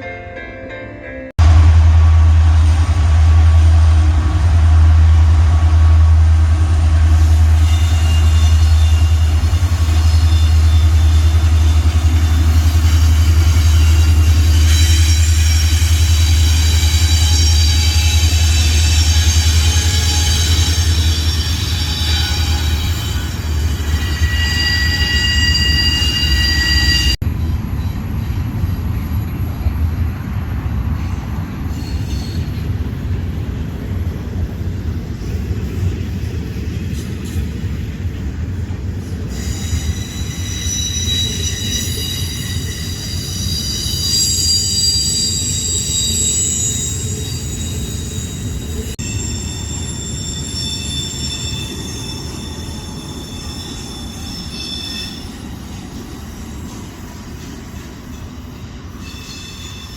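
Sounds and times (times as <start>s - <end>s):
freight train rumbling on rails: 0.0s - 59.9s
train wheels squealing: 7.3s - 29.7s, 30.9s - 33.0s, 39.0s - 59.9s.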